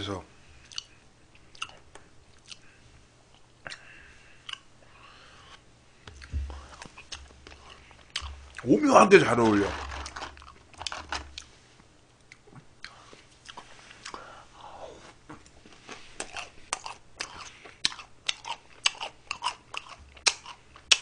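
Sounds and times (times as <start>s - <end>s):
wet clicking mouth sounds: 0.7s - 2.6s
close chewing: 15.4s - 21.0s.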